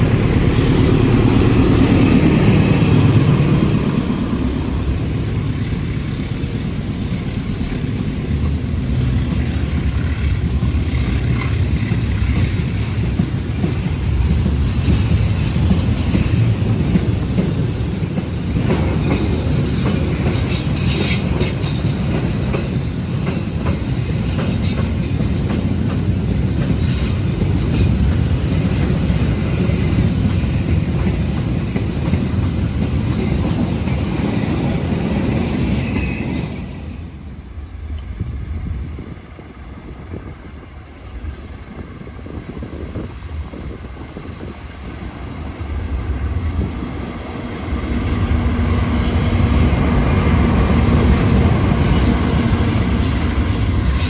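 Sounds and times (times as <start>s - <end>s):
freight train wagons rumbling: 0.0s - 54.0s.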